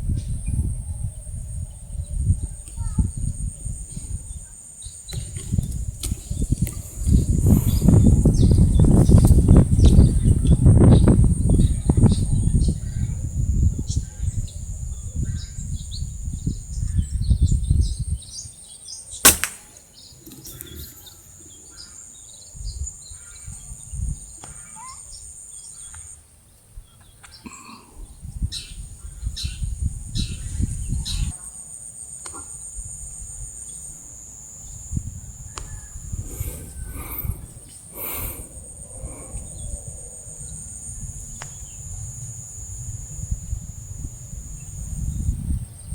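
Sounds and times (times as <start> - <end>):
wind rumbling on microphone: 0.0 - 18.6, 20.0 - 24.4, 28.0 - 31.4, 34.6 - 45.9
insects buzzing: 1.3 - 26.4, 28.3 - 45.9
small birds chirping: 2.1 - 13.2, 13.8 - 31.5, 35.5 - 40.6
air rifle shot: 19.2 - 20.7.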